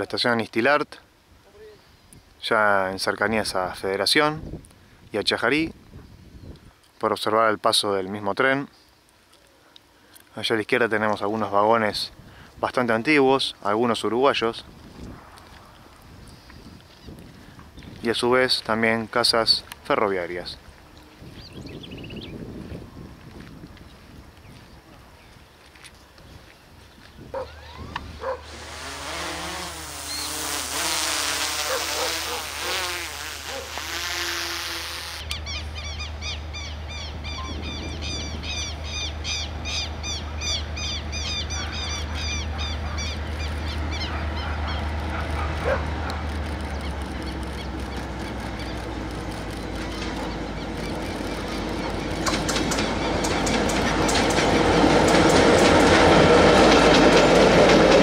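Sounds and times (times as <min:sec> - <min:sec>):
birds chirping: 0:16.2 - 0:22.8, 0:23.8 - 0:28.4, 0:35.0 - 0:54.9
freight train rumbling: 0:39.6 - 0:58.0.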